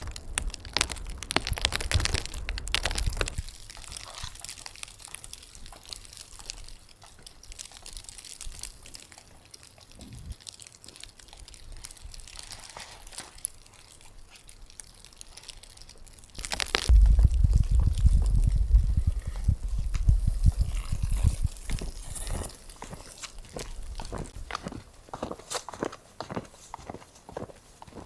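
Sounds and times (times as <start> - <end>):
crackling and crunching: 0.0 - 28.0
low rumble: 16.4 - 22.1.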